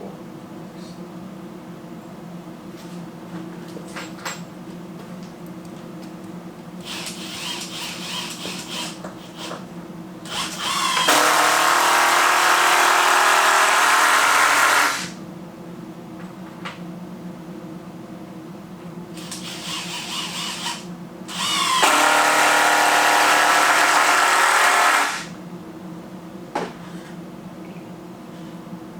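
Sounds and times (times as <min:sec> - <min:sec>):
power tool cutting wood: 0:10.3 - 0:15.2, 0:19.2 - 0:25.3.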